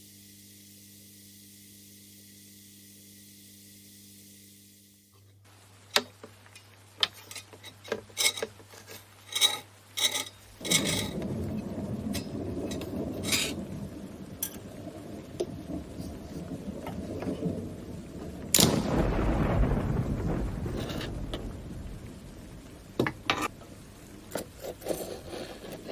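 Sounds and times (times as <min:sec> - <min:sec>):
scraping and tapping on metal: 0:05.9 - 0:11.3, 0:24.3 - 0:25.9
steady low rumble: 0:10.6 - 0:24.3.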